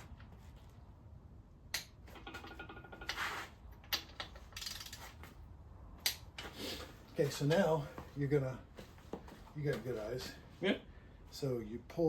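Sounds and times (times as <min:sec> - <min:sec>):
short scraping noises: 0:03.1 - 0:03.6.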